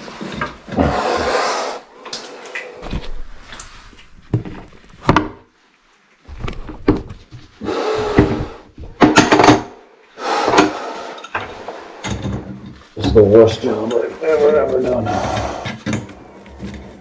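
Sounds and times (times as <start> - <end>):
tools and parts knocking and scraping: 0.0 - 0.9, 6.4 - 9.8, 10.4 - 14.0, 15.2 - 17.0.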